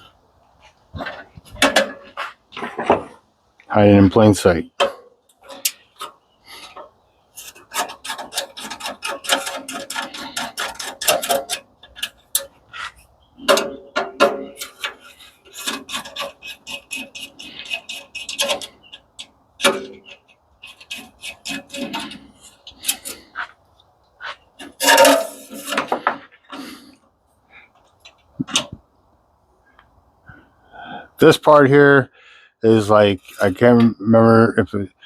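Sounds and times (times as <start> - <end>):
metal parts clinking and scraping: 4.8 - 23.5, 24.2 - 26.9.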